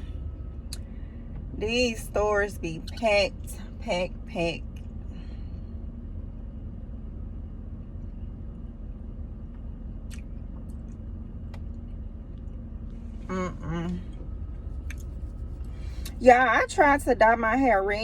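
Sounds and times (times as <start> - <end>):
car engine idling: 13.0 - 18.0.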